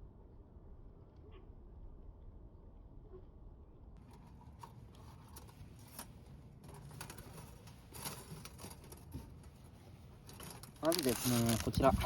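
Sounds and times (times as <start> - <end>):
light rustling: 4.0 - 12.0.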